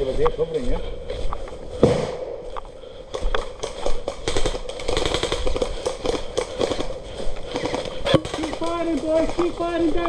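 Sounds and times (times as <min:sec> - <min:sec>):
airsoft guns firing: 0:01.8 - 0:02.4, 0:03.1 - 0:09.9.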